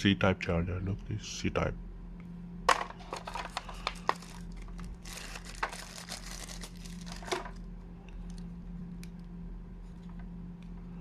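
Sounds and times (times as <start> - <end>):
plastic packaging crinkling: 3.0 - 8.4.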